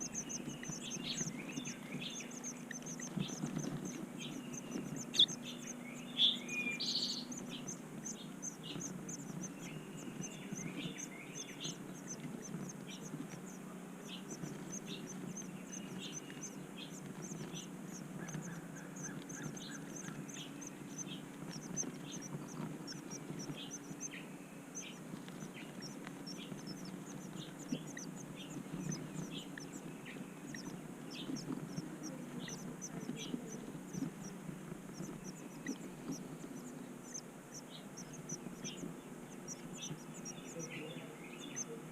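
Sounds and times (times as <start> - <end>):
birds chirping: 0.0 - 41.9
low steady hum: 0.0 - 41.9.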